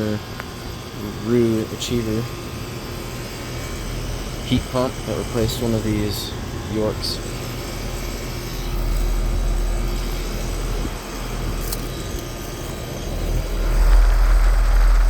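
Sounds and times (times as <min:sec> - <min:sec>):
compressor hum: 0:00.0 - 0:15.0
condenser fan air noise: 0:00.0 - 0:15.0
low rumble: 0:13.3 - 0:15.0.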